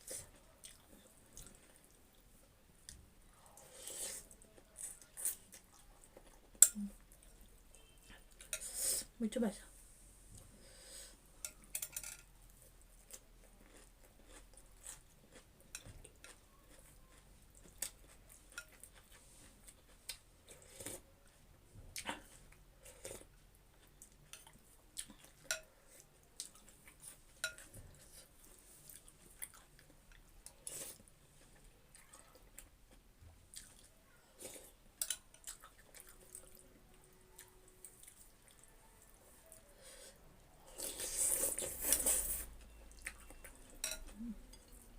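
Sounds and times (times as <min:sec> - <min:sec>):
person chewing: 0:00.0 - 0:02.2, 0:12.6 - 0:21.4, 0:22.0 - 0:39.8, 0:40.6 - 0:44.9.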